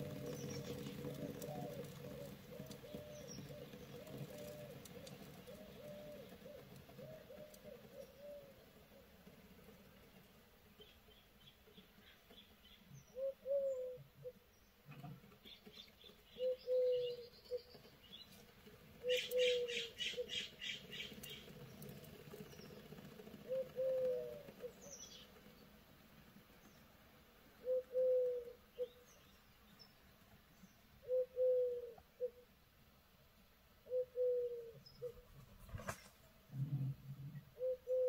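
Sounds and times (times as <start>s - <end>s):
low bird call: 0.0s - 8.6s, 16.3s - 17.8s, 19.0s - 21.5s, 23.4s - 25.3s, 27.6s - 29.2s, 31.0s - 32.5s, 33.8s - 35.2s, 37.3s - 38.0s.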